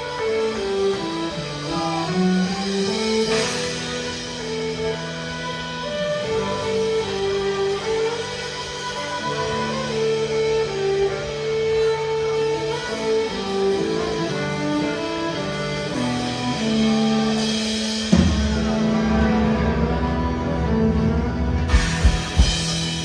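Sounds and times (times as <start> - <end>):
country band playing instrumental: 0.0 - 23.0
sharp hit: 21.7 - 23.0.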